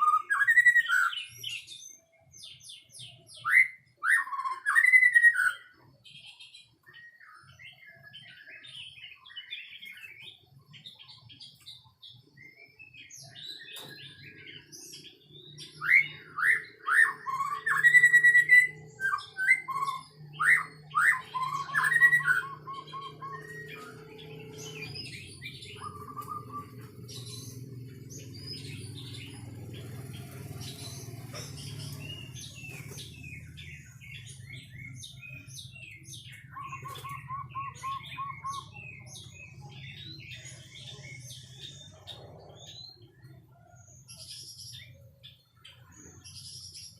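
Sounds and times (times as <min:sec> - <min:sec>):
bird singing whistled phrases: 0:00.0 - 0:01.7, 0:03.1 - 0:05.8, 0:15.6 - 0:26.9, 0:36.2 - 0:39.1.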